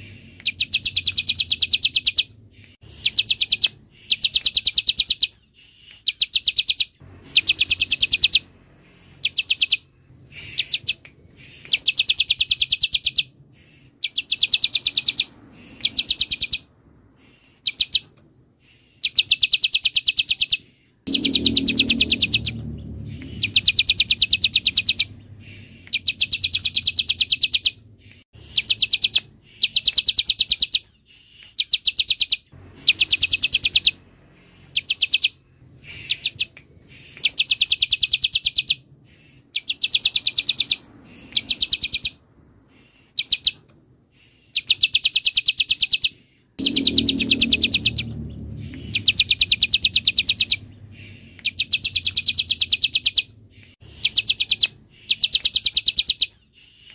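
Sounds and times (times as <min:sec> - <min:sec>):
bird trilling: 0:00.2 - 0:18.1, 0:19.0 - 0:27.8, 0:28.4 - 0:30.9, 0:31.5 - 0:42.2, 0:43.0 - 0:43.6, 0:44.5 - 0:53.3, 0:53.9 - 0:56.9
faint low rumble: 0:21.0 - 0:29.4, 0:32.4 - 0:39.1, 0:46.6 - 0:54.9.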